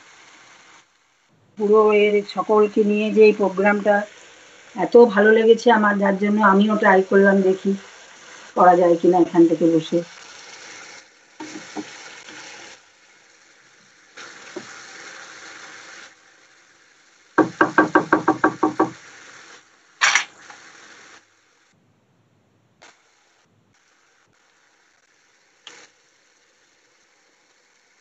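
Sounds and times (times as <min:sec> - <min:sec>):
paste sizzling in oil: 0:00.0 - 0:21.8, 0:23.0 - 0:28.0
spatula knocking pan: 0:11.4 - 0:12.0, 0:17.4 - 0:19.0.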